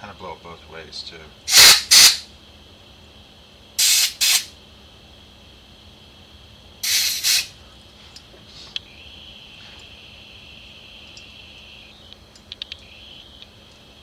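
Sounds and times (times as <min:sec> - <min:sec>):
compressed air hissing blasts: 0:01.5 - 0:02.3, 0:03.8 - 0:04.5, 0:06.8 - 0:07.6.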